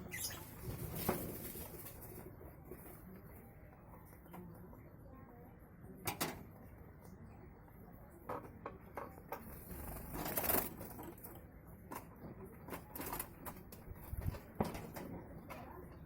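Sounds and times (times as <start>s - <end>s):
bird rustling: 0.0s - 2.2s.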